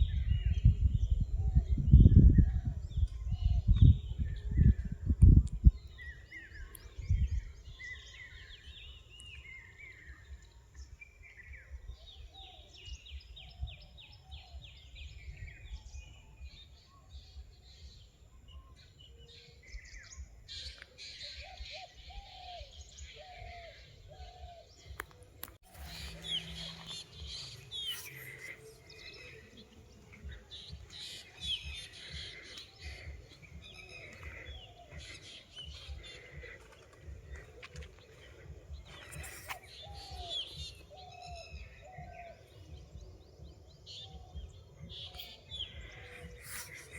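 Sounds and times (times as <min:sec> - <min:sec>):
forest birds singing: 0:00.0 - 0:46.9.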